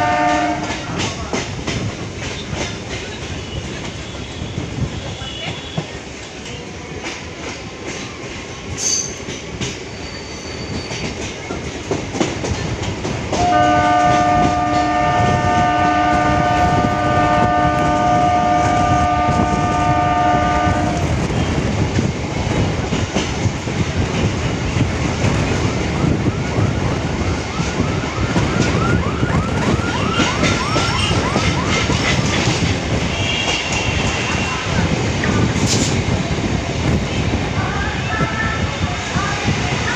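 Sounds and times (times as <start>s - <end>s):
multi-tone train horn: 0.0s - 1.0s, 3.2s - 6.0s, 13.3s - 21.6s, 27.8s - 32.4s, 33.0s - 34.9s
train wheels rumbling on track: 0.0s - 39.9s.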